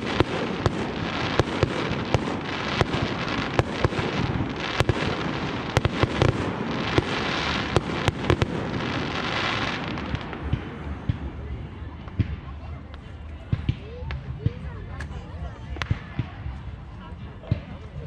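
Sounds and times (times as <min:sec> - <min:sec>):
fireworks bangs: 0:00.0 - 0:12.6
fireworks crackle: 0:00.0 - 0:14.3.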